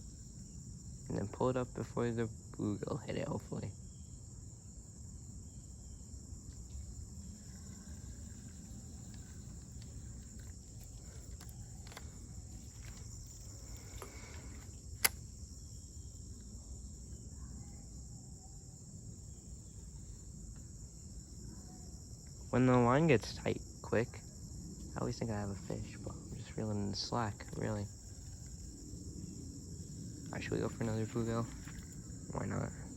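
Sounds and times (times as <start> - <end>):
insects droning: 0.0 - 32.9
sharp clicks: 8.2 - 15.3.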